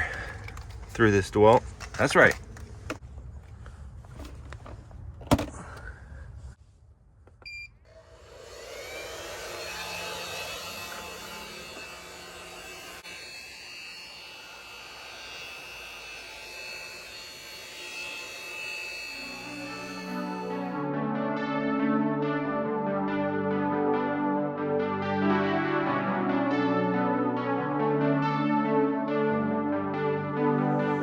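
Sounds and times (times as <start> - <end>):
hairdryer blowing: 7.9 - 20.8
music: 19.2 - 31.0.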